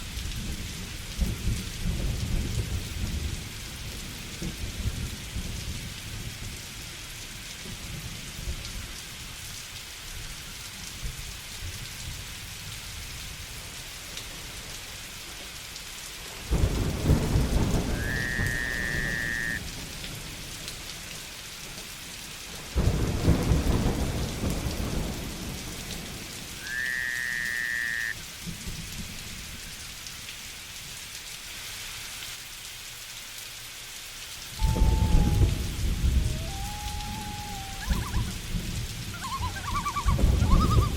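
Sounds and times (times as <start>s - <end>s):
steady rain: 0.0s - 40.9s
loud thunderclaps: 16.5s - 20.2s, 22.8s - 26.3s, 34.6s - 39.1s, 40.1s - 40.9s
short whistled call: 17.9s - 19.6s, 34.6s - 38.4s, 39.2s - 40.9s.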